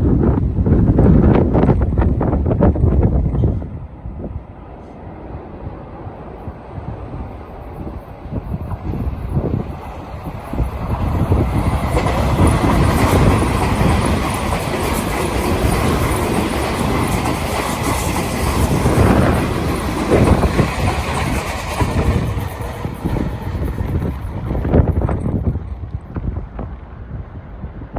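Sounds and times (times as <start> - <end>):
wind buffeting microphone: 0.0 - 27.9
electric train passing: 0.3 - 27.9
wheels clattering over rail joints: 8.4 - 26.7.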